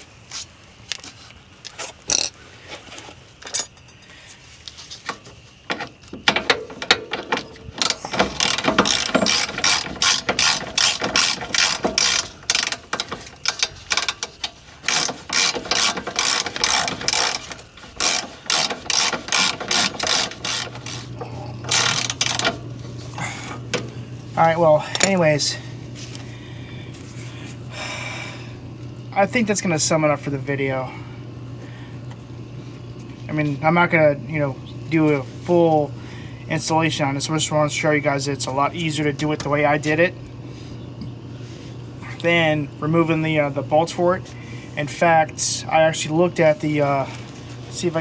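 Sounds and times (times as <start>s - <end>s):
low steady hum: 0.0s - 48.0s
ratchet wrench clicking: 6.2s - 22.6s.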